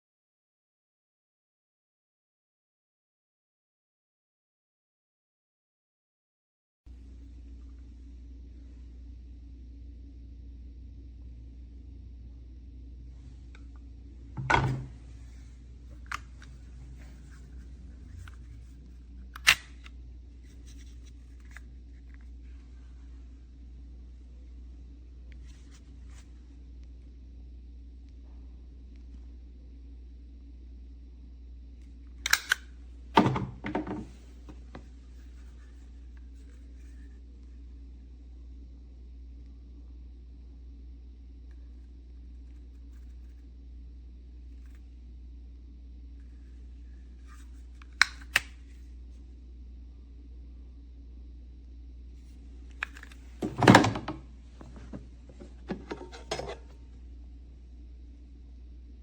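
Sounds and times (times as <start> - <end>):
low steady hum: 6.9 - 59.0.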